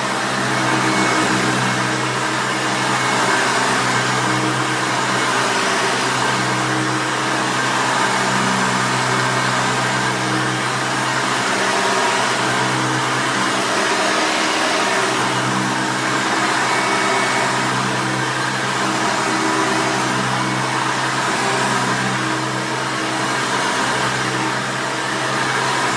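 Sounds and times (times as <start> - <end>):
vacuum cleaner running: 0.0 - 25.9.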